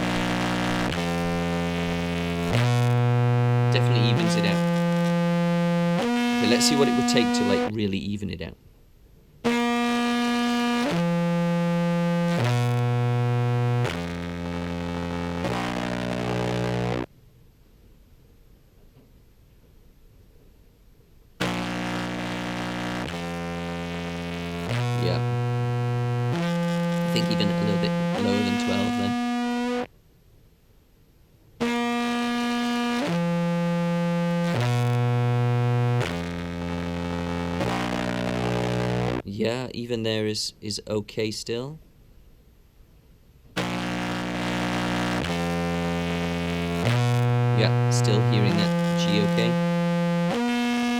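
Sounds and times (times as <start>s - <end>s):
distorted clarinet notes: 0.0s - 7.7s, 9.5s - 17.1s, 21.4s - 29.9s, 31.6s - 39.2s, 43.6s - 50.9s.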